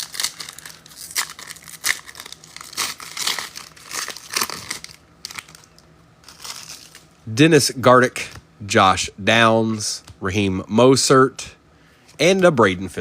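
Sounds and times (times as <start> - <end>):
wrapper crinkling and tearing: 0.0 - 7.1.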